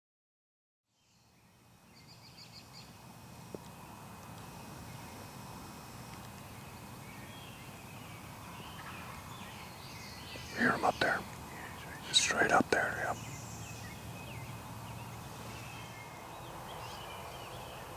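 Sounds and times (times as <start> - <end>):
background hiss: 1.0 - 17.9
songbird chirps: 6.2 - 17.9.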